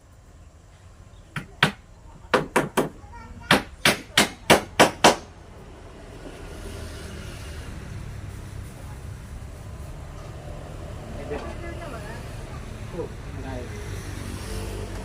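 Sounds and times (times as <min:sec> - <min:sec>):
hammer striking wood: 0:01.3 - 0:05.3.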